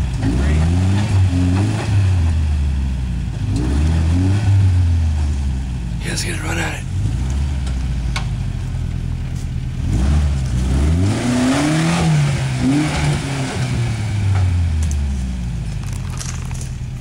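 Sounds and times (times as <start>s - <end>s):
truck engine revving: 0.0s - 8.2s, 9.8s - 15.0s.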